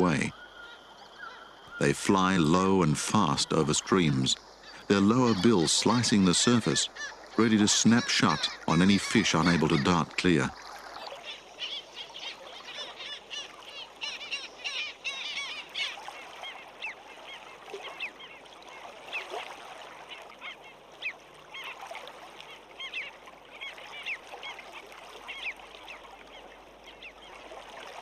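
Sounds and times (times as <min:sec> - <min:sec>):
flock of birds calling: 0:00.0 - 0:19.4.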